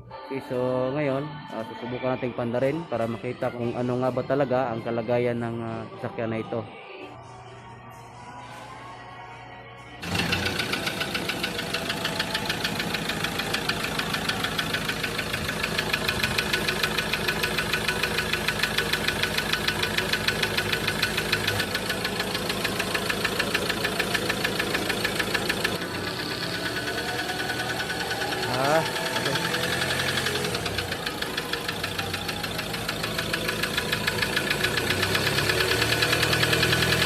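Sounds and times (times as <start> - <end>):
diesel engine starting: 10.0 - 37.0
engine idling with knocking: 10.0 - 37.0.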